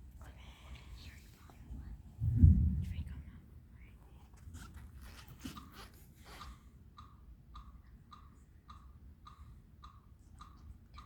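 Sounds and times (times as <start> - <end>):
tongue clicking like ticking clock: 6.9 - 11.0.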